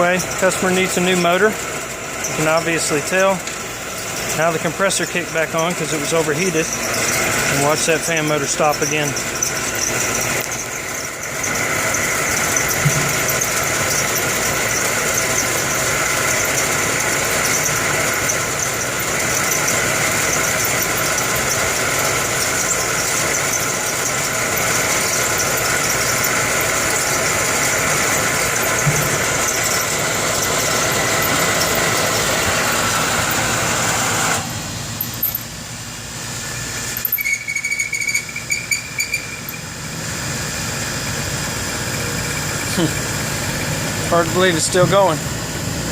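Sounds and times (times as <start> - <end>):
fan motor squealing: 0.0 - 45.9
irregular squeaks and chirps: 6.4 - 16.7, 22.4 - 32.8, 36.9 - 39.7.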